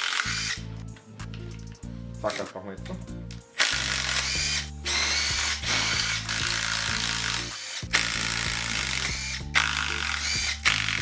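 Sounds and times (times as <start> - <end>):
power tool motor whine: 0.0 - 0.6, 3.6 - 11.0
music with bass line: 0.3 - 11.0.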